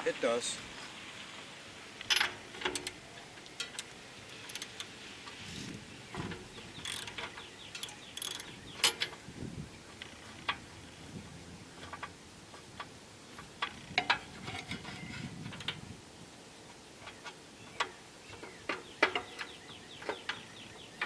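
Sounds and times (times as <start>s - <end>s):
short scraping: 5.2s - 7.1s
metallic clicks of hand tools: 6.8s - 9.2s.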